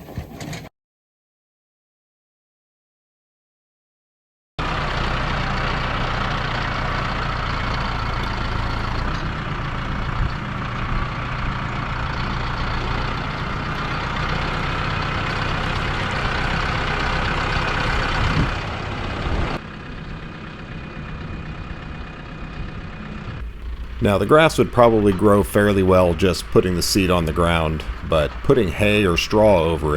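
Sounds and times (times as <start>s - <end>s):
diesel farm engine running: 4.6s - 29.9s.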